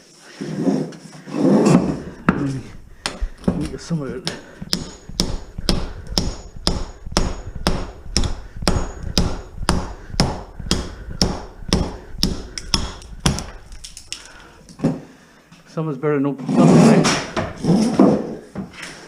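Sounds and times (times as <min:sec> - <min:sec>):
hammer blows on steel pipe: 0:04.7 - 0:13.4.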